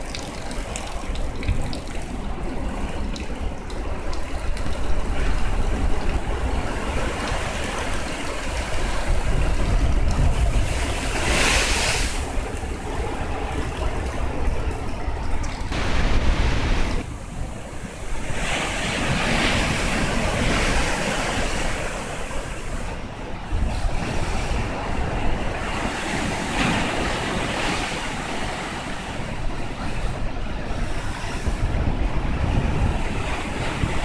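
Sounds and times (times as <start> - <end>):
storm waves breaking: 0.0 - 34.0
wind rumbling on microphone: 0.0 - 34.0.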